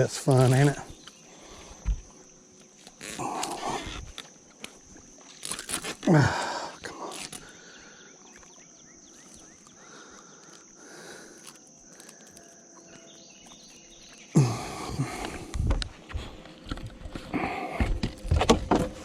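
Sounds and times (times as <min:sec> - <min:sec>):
insect drone: 0:00.0 - 0:19.0
bird chirps: 0:07.6 - 0:10.7, 0:12.2 - 0:15.1.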